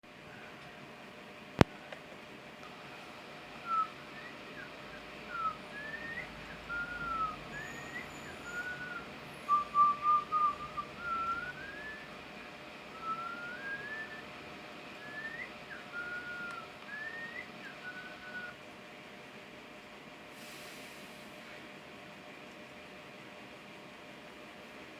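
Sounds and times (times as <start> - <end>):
person whistling: 3.6 - 12.1, 12.9 - 14.3, 15.0 - 18.6.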